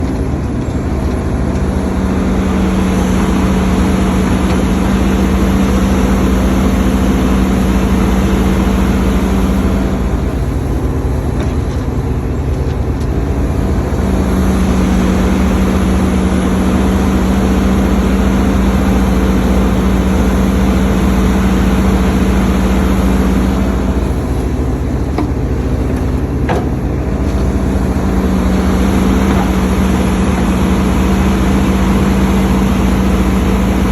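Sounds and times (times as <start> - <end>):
excavator engine and hydraulics: 0.0 - 33.9.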